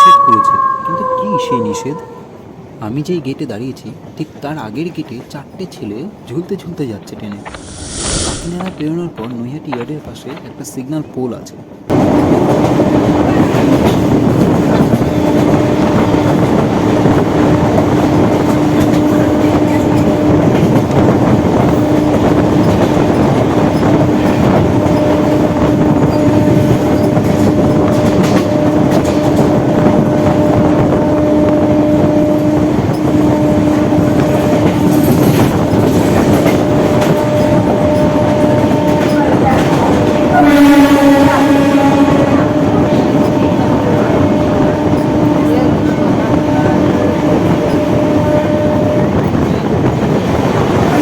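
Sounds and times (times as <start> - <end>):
train rumble: 0.0 - 51.0
train wheels clattering on rails: 11.9 - 51.0.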